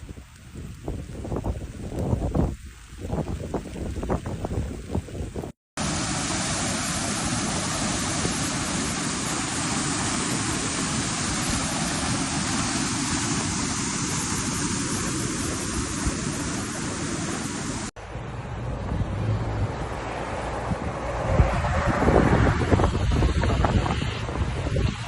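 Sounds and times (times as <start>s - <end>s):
steady rushing noise: 5.8s - 25.0s.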